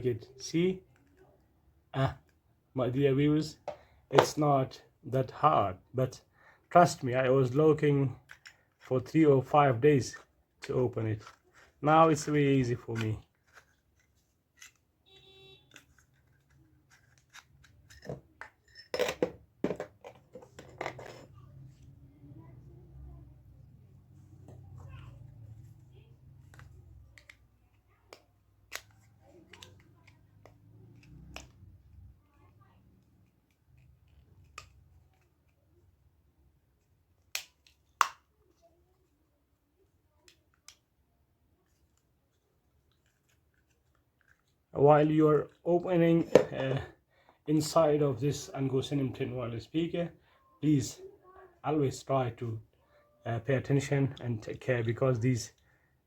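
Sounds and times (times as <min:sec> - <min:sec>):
plastic casing clicks and scrapes: 0:15.7 - 0:21.3.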